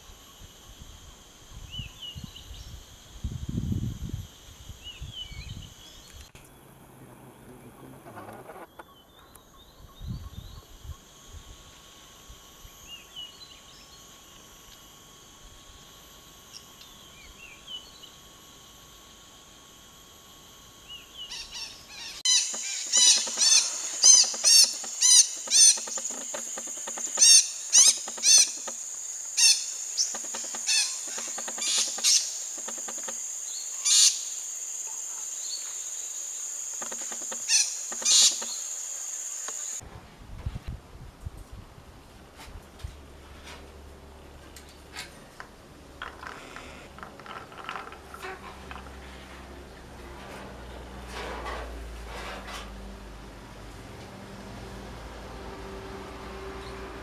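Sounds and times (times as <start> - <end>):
high insect drone: 0.0 - 39.8, 45.6 - 50.7
faint chirps: 20.4 - 39.8
sharp falling bird calls: 21.2 - 34.4, 36.7 - 39.8.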